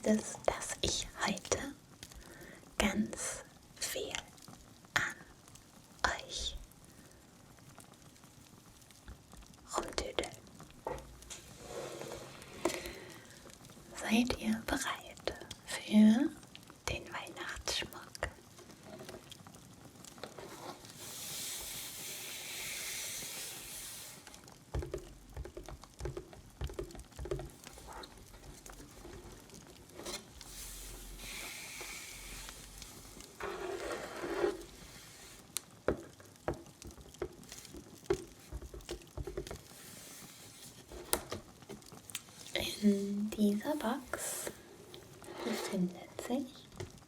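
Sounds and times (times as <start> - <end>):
small clicks and crackles: 0.0 - 47.0
soft rustling and handling: 16.5 - 47.0.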